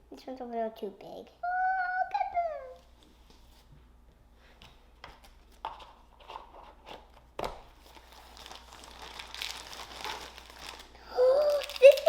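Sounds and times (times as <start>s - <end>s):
plastic bags crinkling: 7.8s - 12.0s.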